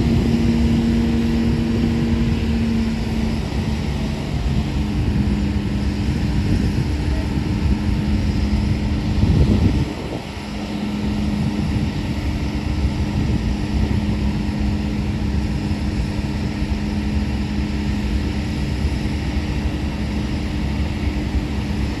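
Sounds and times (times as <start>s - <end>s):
freight train wheels rumbling: 0.0s - 22.0s
low hum: 0.0s - 22.0s.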